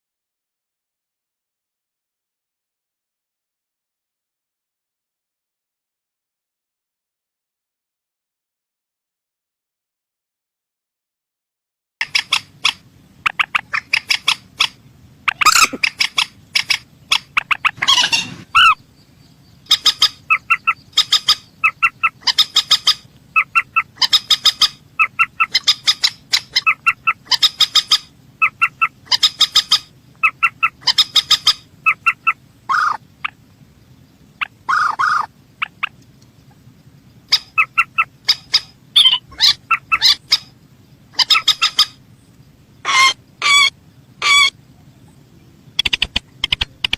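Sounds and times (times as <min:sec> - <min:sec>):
faint low hum: 0:12.0 - 0:46.9
rail bird calling: 0:12.0 - 0:46.9.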